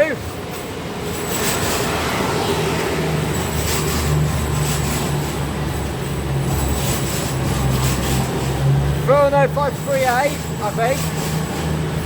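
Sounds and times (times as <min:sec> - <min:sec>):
freight train rumbling: 0:00.0 - 0:12.0
train wheel clacks: 0:00.0 - 0:12.0.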